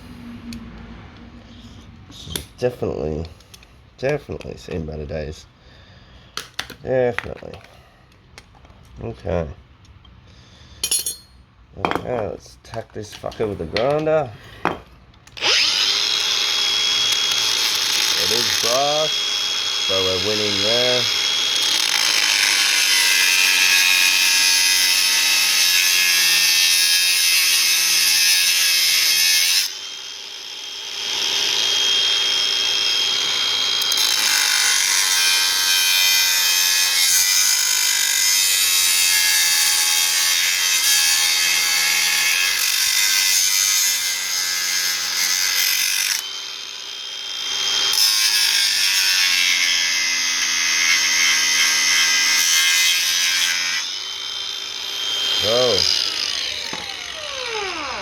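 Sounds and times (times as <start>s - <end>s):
angle grinder cutting metal: 10.8s - 11.3s, 15.4s - 58.0s.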